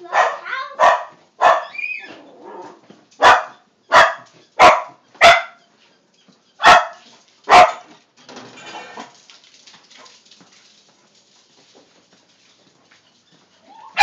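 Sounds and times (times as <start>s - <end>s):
dog barking: 0.0s - 1.8s, 3.2s - 5.6s, 6.6s - 7.9s.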